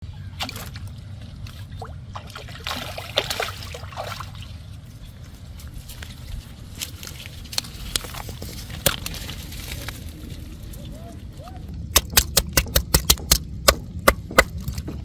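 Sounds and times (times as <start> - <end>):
steady low rumble: 0.0 - 15.0
water trickling and splashing: 0.3 - 11.2.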